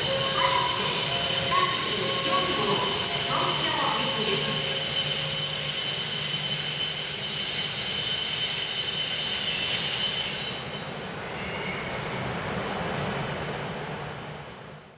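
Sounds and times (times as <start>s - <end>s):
train rushing noise: 0.0s - 5.6s
train high-pitched whine: 0.0s - 14.9s.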